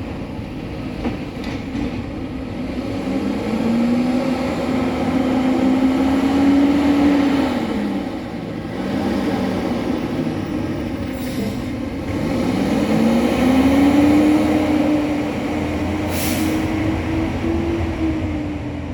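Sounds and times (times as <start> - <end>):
garbage truck diesel engine revving: 2.7 - 18.8
air hiss: 16.1 - 16.7.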